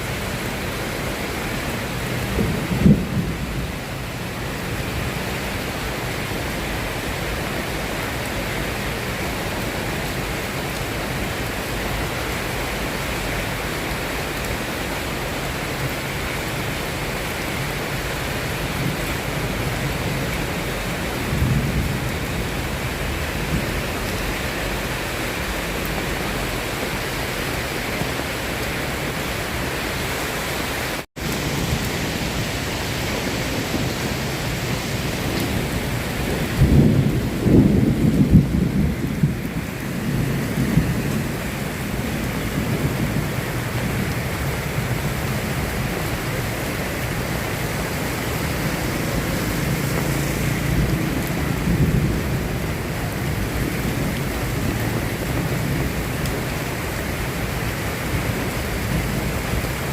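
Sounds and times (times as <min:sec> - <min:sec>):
steady rain falling: 0:00.0 - 0:59.9
thunder rumbling: 0:01.2 - 0:05.5, 0:31.2 - 0:59.9.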